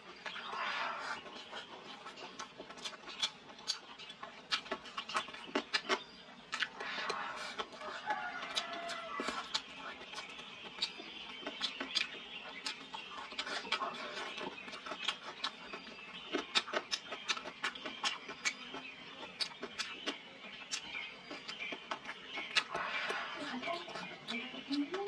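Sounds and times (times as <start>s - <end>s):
chewing with smacks and clicks: 0.0s - 25.0s.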